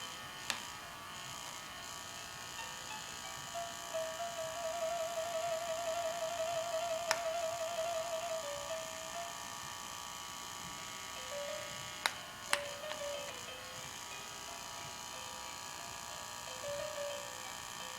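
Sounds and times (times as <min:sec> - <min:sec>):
lullaby melody from baby mobile: 0:02.0 - 0:10.0, 0:11.0 - 0:17.9.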